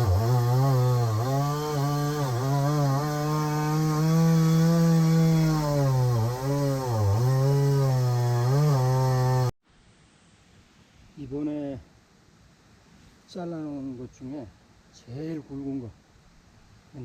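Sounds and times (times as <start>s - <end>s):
chainsaw cutting wood: 0.0s - 9.6s.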